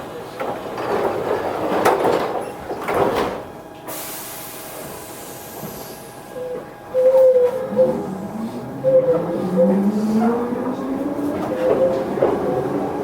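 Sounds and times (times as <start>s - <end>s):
train doors closing with knocks: 0.1s - 13.0s.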